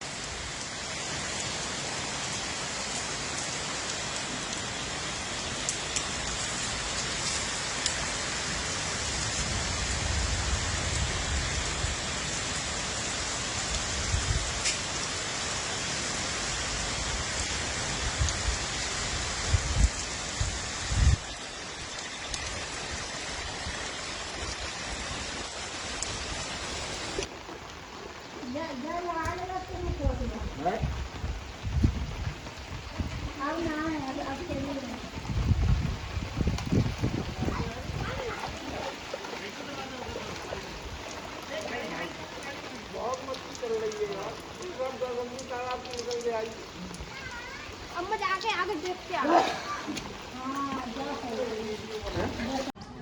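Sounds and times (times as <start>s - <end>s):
heavy rain falling: 0.0s - 52.8s.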